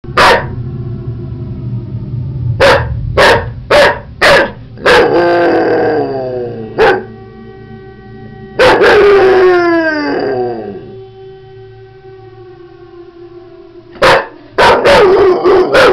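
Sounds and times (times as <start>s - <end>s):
steady droning tone: 0.0s - 15.9s
dog howling: 0.1s - 0.7s, 2.4s - 7.4s, 8.4s - 11.1s, 12.5s - 15.9s
dog barking: 0.2s - 0.5s, 2.6s - 5.1s, 6.8s - 7.1s, 8.6s - 9.0s, 14.0s - 15.9s.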